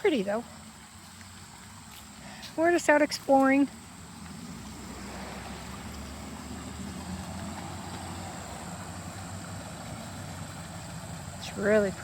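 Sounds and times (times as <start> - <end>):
vehicle engine rumble: 0.0 - 12.0
faint rushing noise: 3.6 - 11.6.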